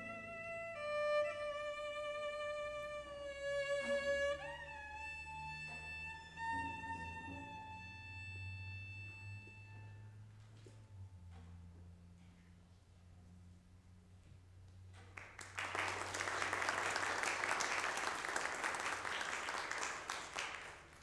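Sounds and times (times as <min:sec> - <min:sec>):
violin playing slow held notes: 0:00.0 - 0:10.4
low sustained accompaniment: 0:00.0 - 0:11.0.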